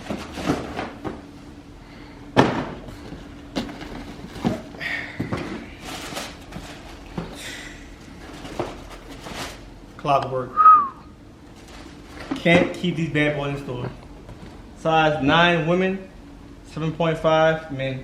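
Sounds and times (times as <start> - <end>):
cardboard boxes knocking and thumping: 0.0 - 1.3, 2.3 - 7.5, 8.2 - 9.6.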